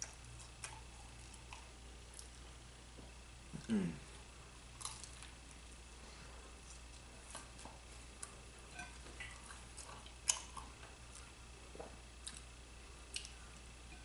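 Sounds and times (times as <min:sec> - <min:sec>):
person chewing with mouth clicks: 0:00.0 - 0:02.4, 0:04.8 - 0:05.4, 0:06.6 - 0:13.7.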